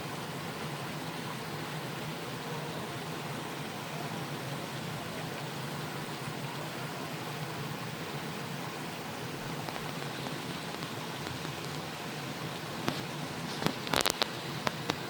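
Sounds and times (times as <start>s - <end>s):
stream rushing: 0.0s - 15.0s.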